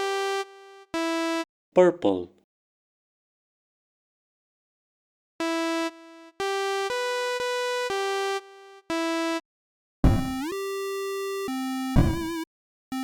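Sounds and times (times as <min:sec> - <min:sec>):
chiptune synth melody: 0:10.1 - 0:10.9, 0:11.9 - 0:12.4.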